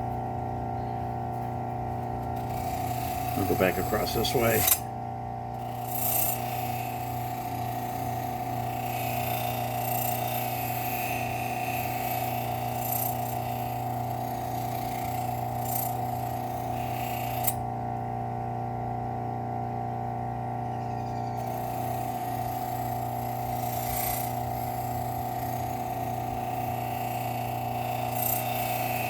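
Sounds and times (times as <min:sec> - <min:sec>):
bench grinder humming: 0:00.0 - 0:29.0
knife blade scraping on wheel: 0:02.3 - 0:04.9, 0:05.6 - 0:17.6, 0:20.7 - 0:29.0.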